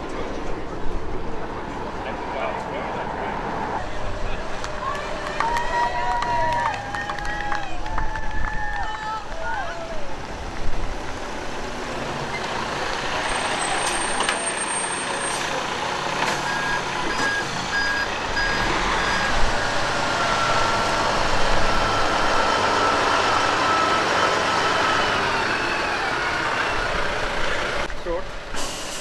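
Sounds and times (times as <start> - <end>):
heavy truck engines running: 0.0 - 29.0
reversing beeper: 16.3 - 20.9.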